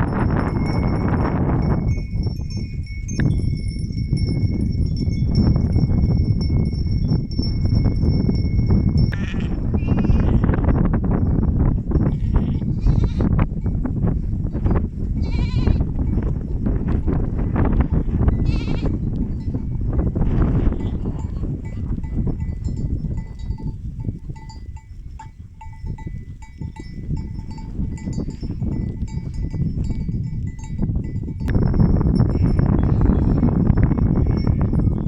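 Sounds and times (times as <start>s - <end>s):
small bells clinking: 0.0s - 9.4s, 20.8s - 35.0s
sheep bleating: 9.1s - 10.5s, 15.2s - 15.8s, 18.4s - 19.0s.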